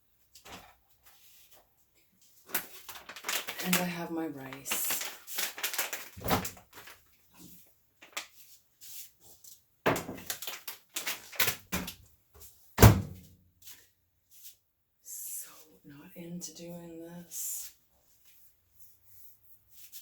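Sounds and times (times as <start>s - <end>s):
kitchen knocks and thuds: 9.8s - 10.3s, 12.8s - 13.2s.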